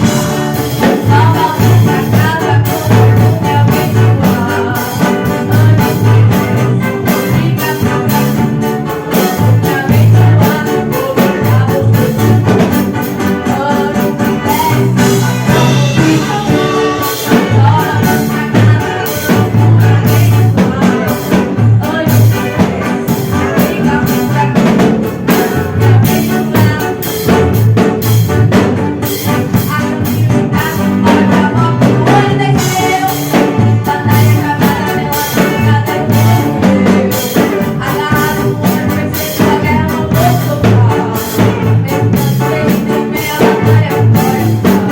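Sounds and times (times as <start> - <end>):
band music: 0.0 - 44.9
busy bass line: 0.0 - 44.9
steady drumming: 0.0 - 44.9.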